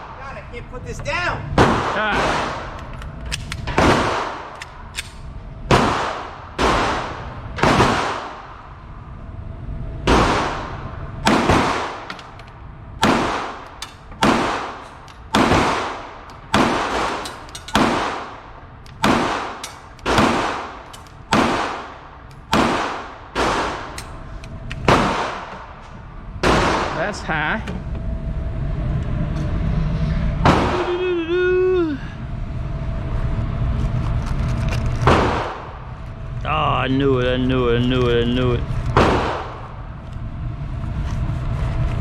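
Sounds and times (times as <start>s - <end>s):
pistol shots echoing: 3.4s - 8.6s, 10.1s - 12.4s, 13.0s - 25.8s.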